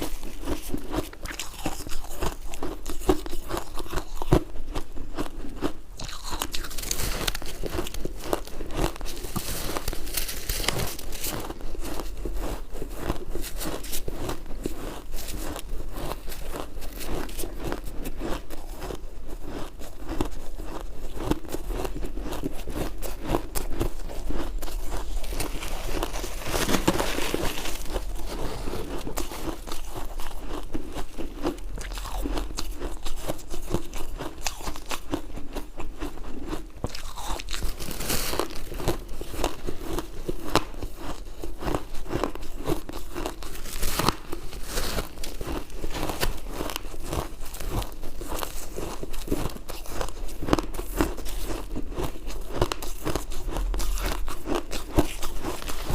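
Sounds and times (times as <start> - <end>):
ice crunching while chewed: 0.0 - 55.9.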